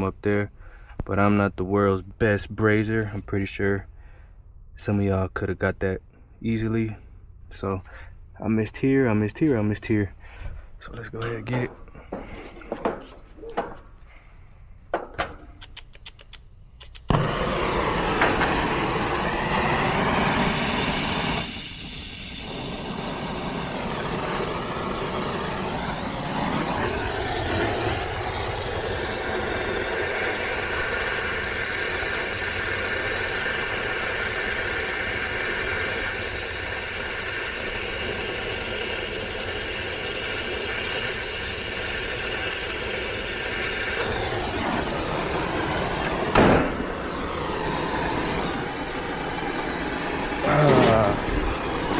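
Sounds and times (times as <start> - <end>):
brazing torch hissing: 10.1 - 51.9
light clicks: 15.6 - 17.1.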